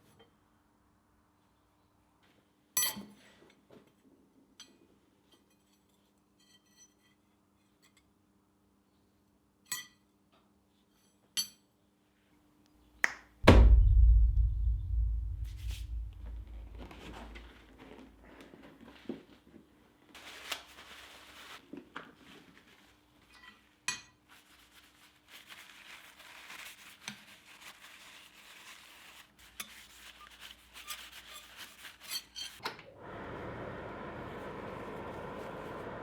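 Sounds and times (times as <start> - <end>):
steady rushing noise: 13.5 - 17.4.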